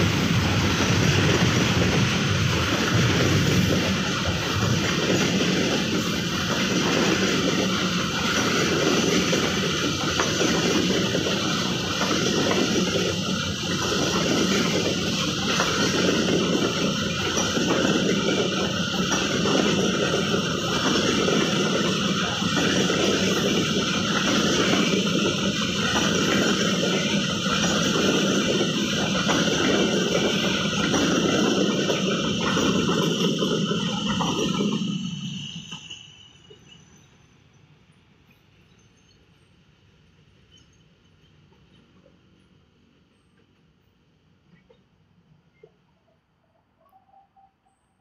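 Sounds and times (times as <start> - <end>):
train wheels rumbling on rails: 0.0 - 37.2.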